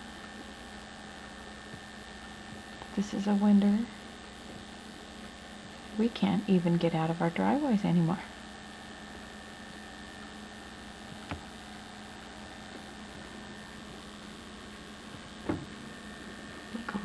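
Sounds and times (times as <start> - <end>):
electrical hum: 0.0 - 17.0
tape hiss: 0.0 - 17.0.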